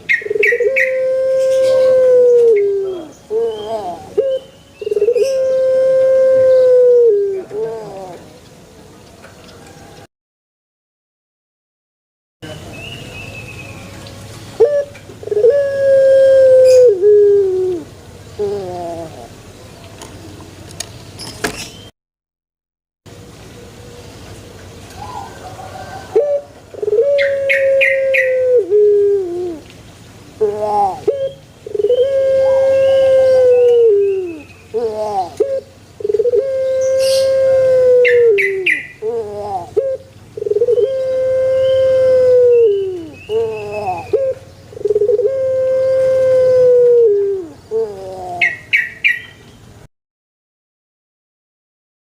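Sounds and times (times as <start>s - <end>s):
dove cooing: 0.0s - 8.4s, 14.6s - 19.4s, 25.0s - 29.7s, 30.4s - 49.2s.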